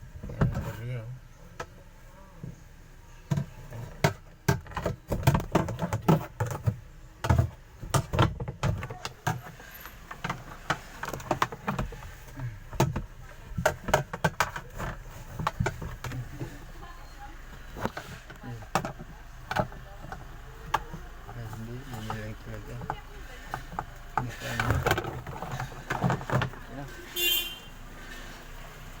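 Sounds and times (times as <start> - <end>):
clicks and rattles of parts: 3.3 - 16.5, 17.8 - 26.7.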